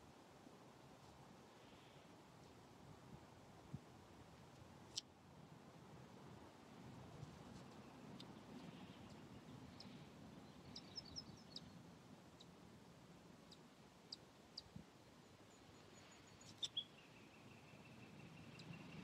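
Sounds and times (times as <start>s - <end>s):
small birds chirping: 7.6s - 12.6s, 13.4s - 19.0s
high bird trill: 15.5s - 19.0s.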